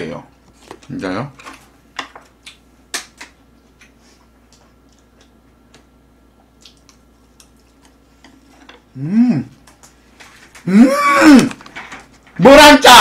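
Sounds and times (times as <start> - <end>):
chewing mouth noises: 6.4 - 8.5.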